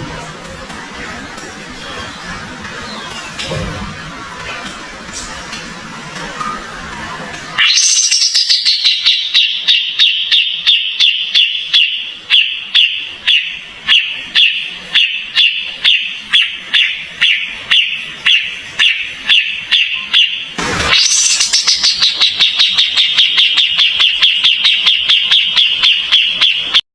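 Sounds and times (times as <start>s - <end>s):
bird calling sharp ringing notes: 7.6s - 26.8s.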